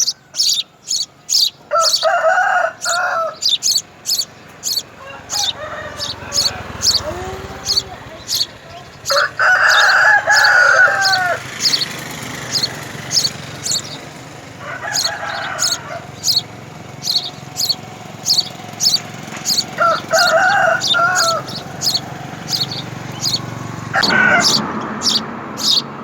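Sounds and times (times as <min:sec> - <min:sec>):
short high bird chirps: 0:00.0 - 0:02.0, 0:02.8 - 0:04.9, 0:15.0 - 0:20.2, 0:20.8 - 0:23.5
long drawn-out bird calls: 0:00.0 - 0:26.0.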